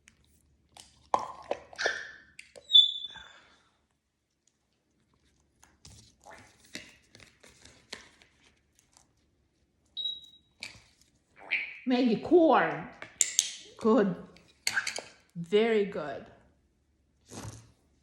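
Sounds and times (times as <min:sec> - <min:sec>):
cards tapping and rustling: 0:05.7 - 0:09.0
high whistle: 0:10.0 - 0:10.4.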